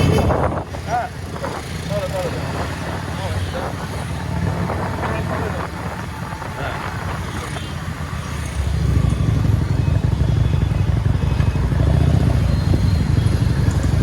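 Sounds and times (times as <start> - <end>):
wind rumble on microphone: 0.0 - 10.2, 10.8 - 14.0
motorcycle engine: 0.0 - 14.0.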